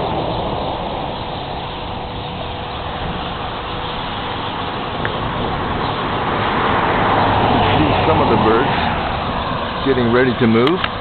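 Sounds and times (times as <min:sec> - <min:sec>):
faint steady hum: 0:00.0 - 0:11.0
flock of birds chirping: 0:00.0 - 0:11.0.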